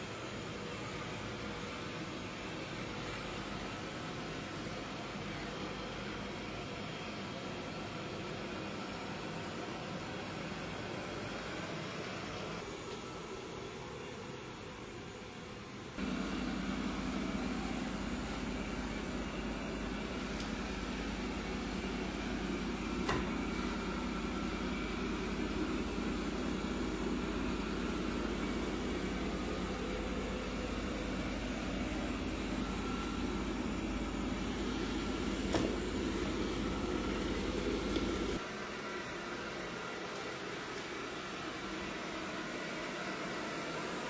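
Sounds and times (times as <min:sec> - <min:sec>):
vacuum motor humming: 0:16.0 - 0:44.0.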